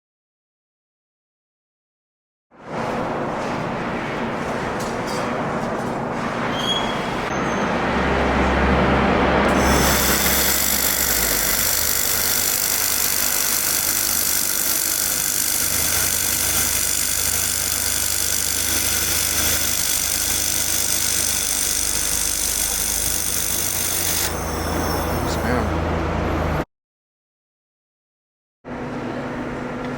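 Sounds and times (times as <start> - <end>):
welding machine humming: 9.5 - 25.8
high-pitched whine: 9.5 - 26.0.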